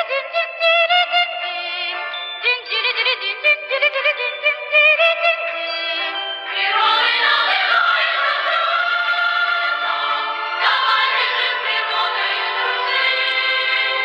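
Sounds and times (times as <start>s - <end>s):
choir singing: 6.0s - 14.0s.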